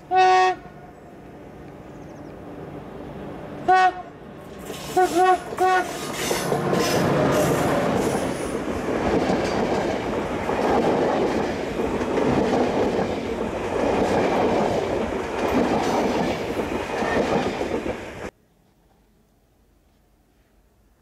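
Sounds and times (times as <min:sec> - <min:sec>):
train wheels rumbling on rails: 0:02.5 - 0:18.3.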